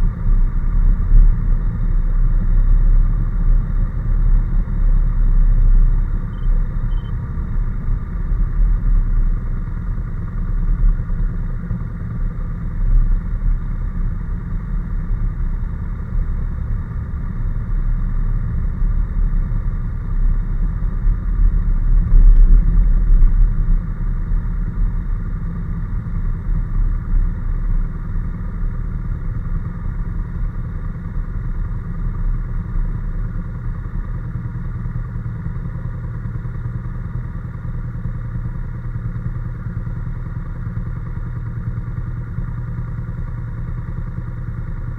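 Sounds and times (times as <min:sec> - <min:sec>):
wind and road rumble: 0:00.0 - 0:33.8.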